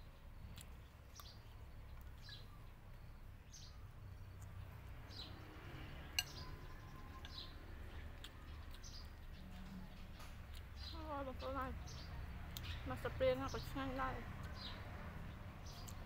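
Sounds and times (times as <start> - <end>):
small bird chirping: 0.0 - 16.0
spoon clinking against bowl: 6.2 - 6.6.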